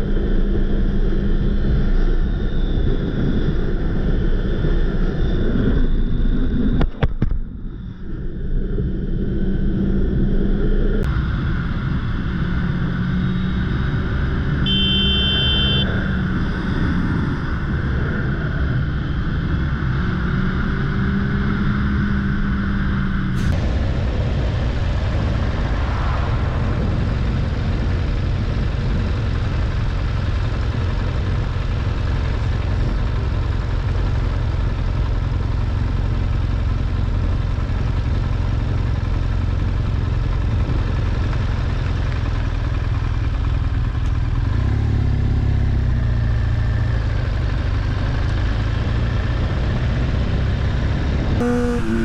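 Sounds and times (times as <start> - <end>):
motorcycle engine running: 11.0 - 52.0.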